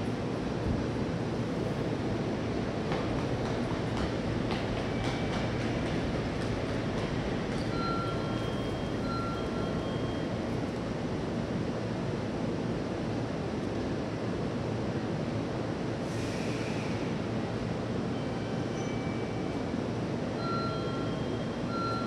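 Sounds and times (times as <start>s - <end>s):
distant train rumbling: 2.6s - 10.0s.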